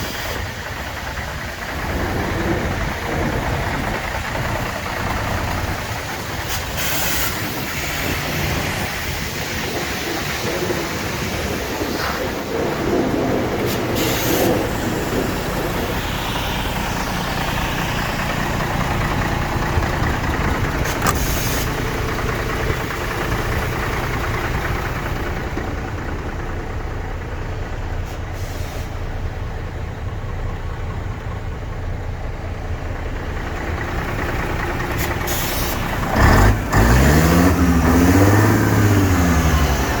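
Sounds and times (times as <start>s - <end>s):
diesel truck engine idling: 0.0s - 40.0s
air hisses: 13.7s - 14.6s, 20.9s - 21.8s, 35.2s - 36.0s
engine revving: 34.0s - 40.0s.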